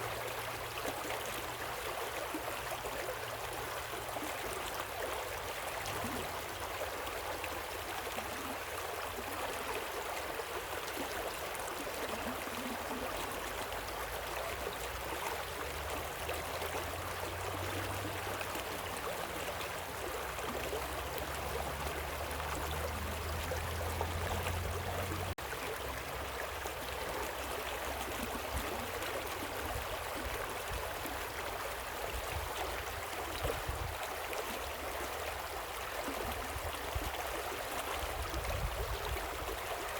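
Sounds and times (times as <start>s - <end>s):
stream and waterfall rushing: 15.7s - 26.8s.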